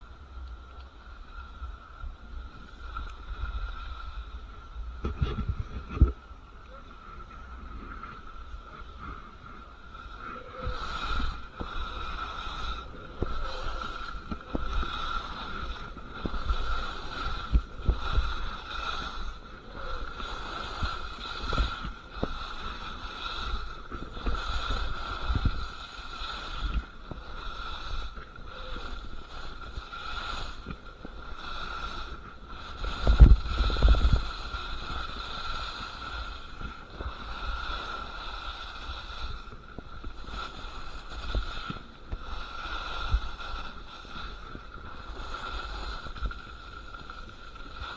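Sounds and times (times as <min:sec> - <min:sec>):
wind buffeting microphone: 0:02.1 - 0:46.8
skis scraping on icy snow: 0:07.8 - 0:47.9.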